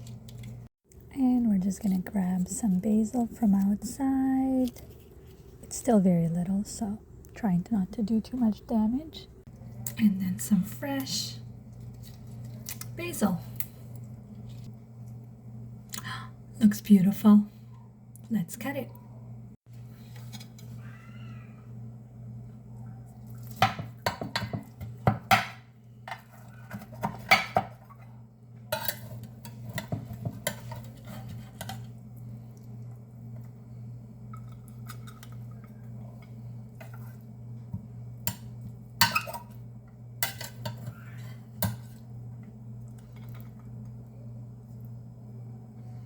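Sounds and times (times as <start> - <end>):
steady low hum: 0.0 - 46.0
cutlery scraping casserole dish: 28.8 - 31.9.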